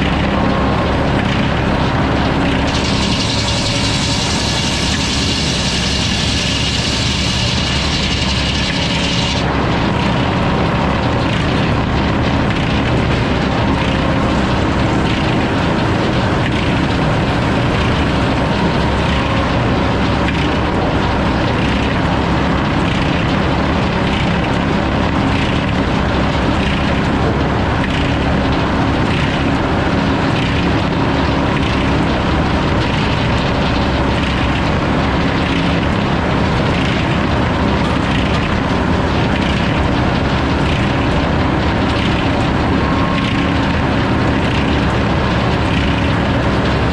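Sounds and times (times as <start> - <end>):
saw cutting through log: 2.4 - 9.5.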